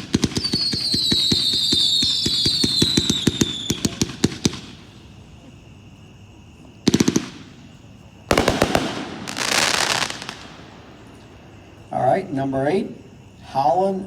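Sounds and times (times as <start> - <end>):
firework volley of rapid bangs: 8.3 - 11.7.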